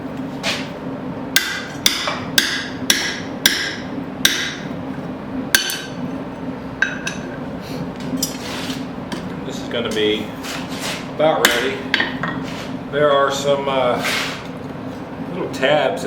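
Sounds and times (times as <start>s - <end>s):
hammer striking steel: 1.4s - 4.7s, 5.6s - 6.0s.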